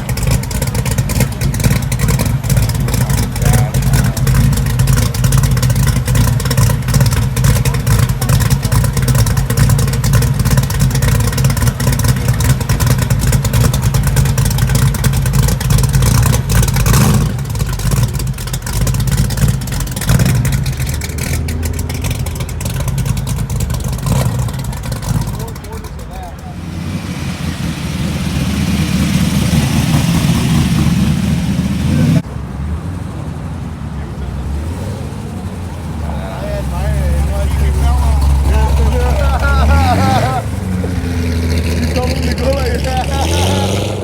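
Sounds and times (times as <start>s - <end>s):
loud car engine running: 0.0s - 44.0s.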